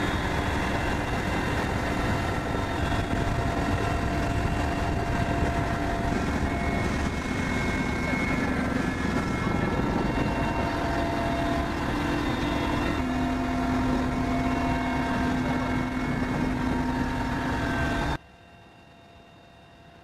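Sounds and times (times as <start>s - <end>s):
helicopter engine and rotor: 0.0s - 20.0s.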